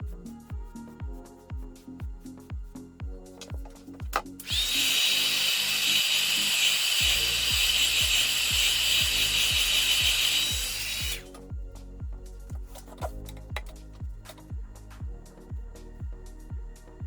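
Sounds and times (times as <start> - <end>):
background music with steady beat: 0.0 - 17.0
electric motor tool whining: 4.1 - 11.4.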